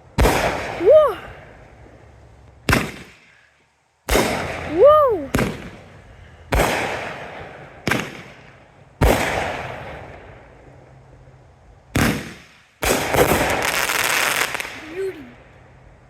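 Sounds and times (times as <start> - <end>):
fireworks bangs echoing: 0.2 - 1.0, 2.7 - 3.3, 4.1 - 10.4, 11.9 - 15.2.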